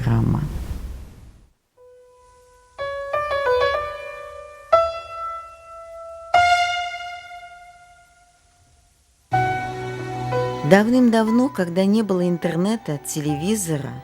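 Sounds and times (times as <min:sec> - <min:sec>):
slow piano music: 0:01.8 - 0:08.6, 0:09.3 - 0:14.0.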